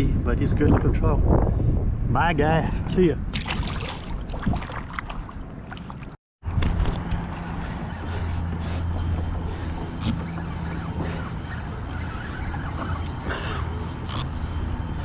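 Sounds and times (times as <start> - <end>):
low engine hum: 6.4 - 15.0.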